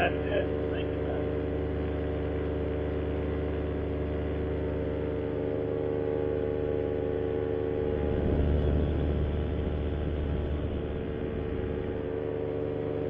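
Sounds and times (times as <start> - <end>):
paramotor engine droning: 0.0 - 13.0.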